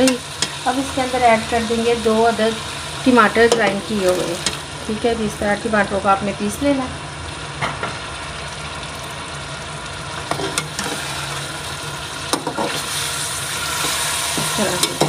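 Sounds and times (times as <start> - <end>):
meat sizzling in oil: 0.0 - 15.0
metal spatula scraping pot: 10.3 - 11.3.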